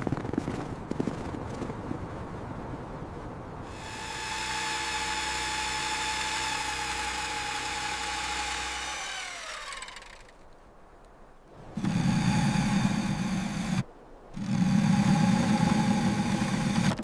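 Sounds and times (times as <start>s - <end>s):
power tool motor whining: 3.7s - 10.3s, 11.8s - 13.8s, 14.4s - 17.0s.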